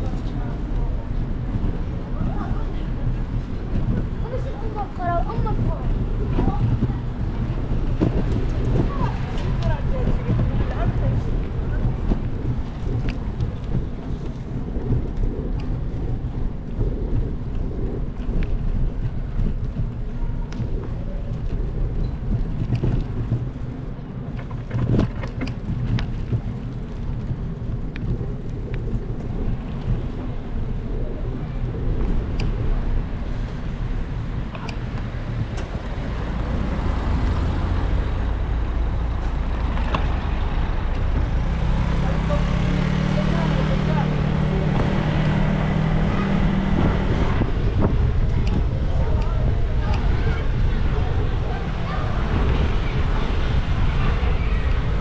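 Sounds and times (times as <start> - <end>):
low rumble: 0.0 - 55.0
rain falling: 33.0 - 47.4.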